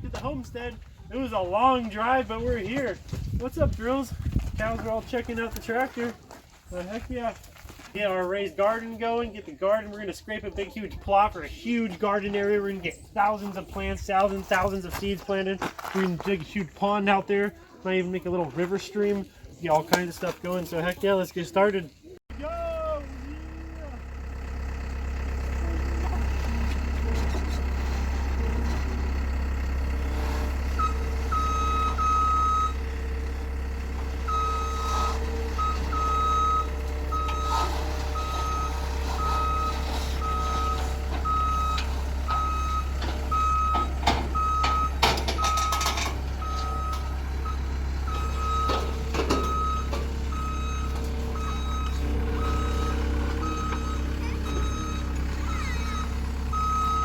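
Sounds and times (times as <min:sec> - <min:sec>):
tractor diesel engine running: 0:00.0 - 0:19.6, 0:21.5 - 0:57.0
reversing alarm beeping: 0:30.7 - 0:32.9, 0:34.1 - 0:57.0.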